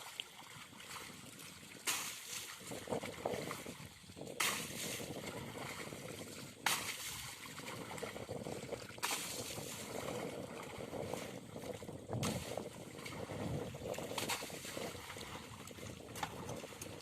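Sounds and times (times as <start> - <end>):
loud water splash: 1.8 - 2.6, 6.6 - 8.0, 8.8 - 10.0.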